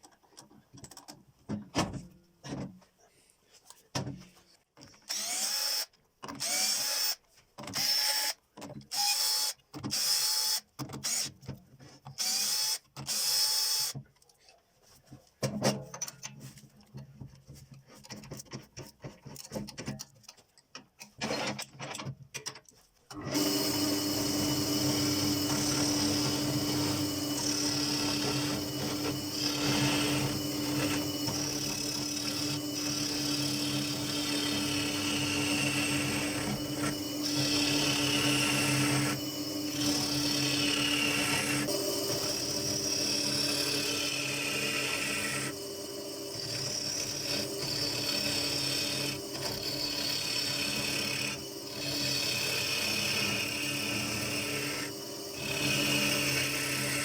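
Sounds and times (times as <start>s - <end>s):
power drill whining: 5.0s - 11.3s, 12.2s - 14.0s, 23.1s - 57.0s
lathe humming: 23.2s - 57.0s.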